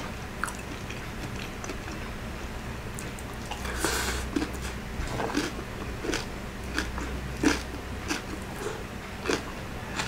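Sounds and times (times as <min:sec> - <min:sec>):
person chewing crunchy food: 0:03.0 - 0:10.0.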